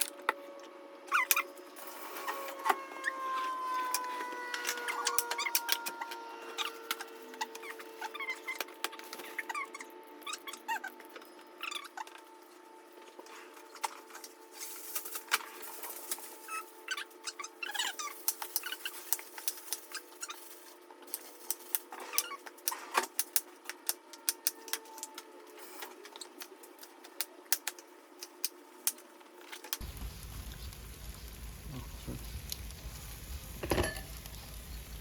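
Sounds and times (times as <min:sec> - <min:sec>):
low rumble: 0:29.8 - 0:35.0.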